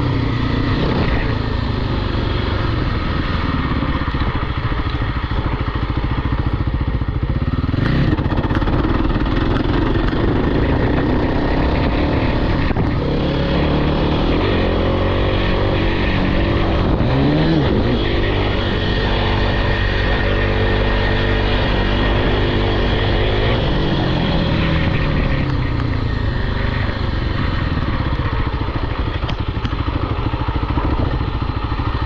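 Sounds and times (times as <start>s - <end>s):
off-road vehicle engine revving: 7.4s - 29.8s.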